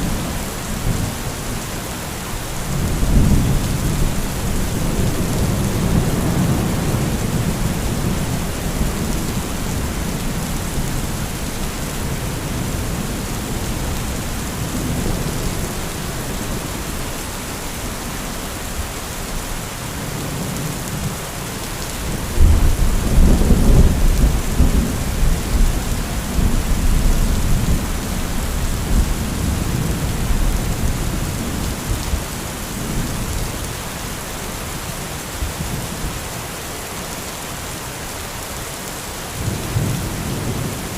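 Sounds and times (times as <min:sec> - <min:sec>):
heavy rain: 0:00.0 - 0:40.9
thunder rumbling: 0:22.2 - 0:32.2.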